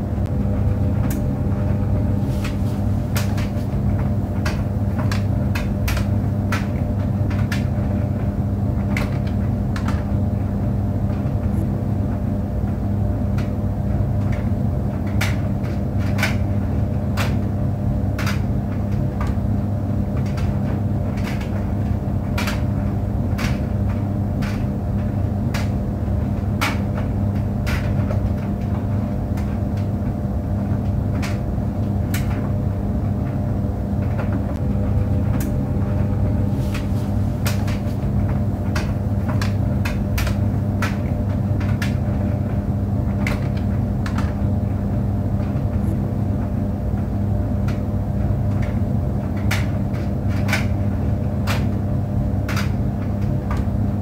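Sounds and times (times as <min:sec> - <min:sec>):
clothes dryer humming: 0:00.0 - 0:54.0
dryer drum clicks and knocks: 0:00.0 - 0:54.0.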